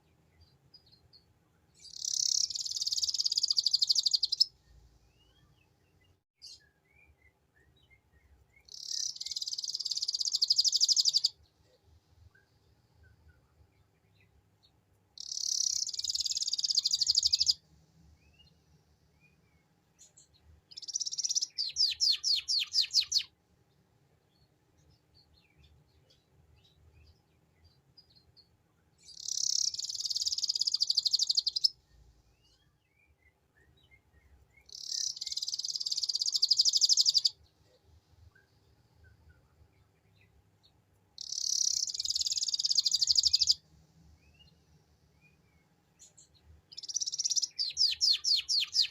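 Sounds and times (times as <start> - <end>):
canary singing: 1.8 - 4.5, 8.6 - 11.4, 15.2 - 17.6, 20.7 - 23.3, 29.0 - 31.8, 34.6 - 37.4, 41.2 - 43.6, 46.7 - 48.9.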